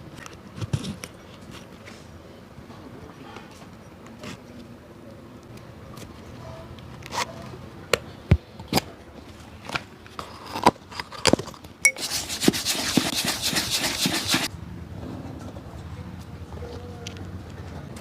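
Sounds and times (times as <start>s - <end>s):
rapid brushing strokes on shoe: 12.0s - 14.5s.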